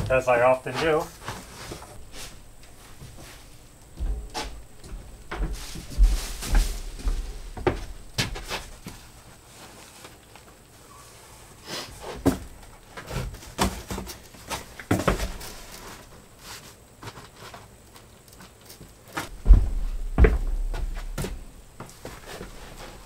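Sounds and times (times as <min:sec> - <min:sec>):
insulation rustling: 0:00.0 - 0:10.8, 0:18.6 - 0:23.0
knocks from handling insulation: 0:04.0 - 0:09.0, 0:19.3 - 0:23.0.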